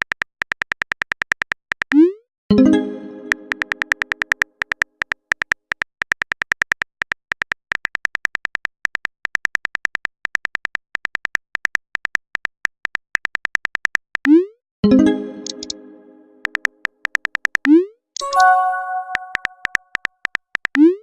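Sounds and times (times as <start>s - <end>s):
typing clicks: 3.2s - 6.3s, 15.3s - 15.8s, 16.4s - 21.0s.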